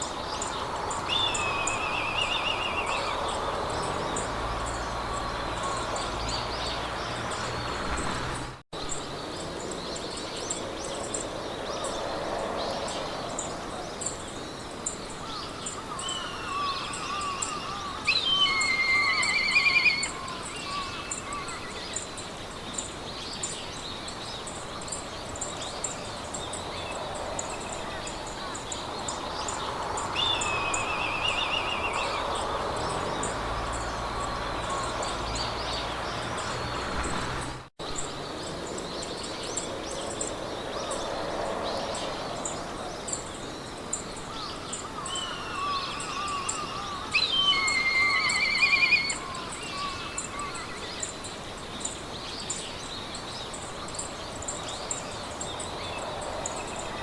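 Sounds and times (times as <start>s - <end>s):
wind through grass: 0.0s - 57.0s
high insect chirps: 14.9s - 22.9s, 39.1s - 52.1s
birds singing short trills: 45.2s - 51.1s.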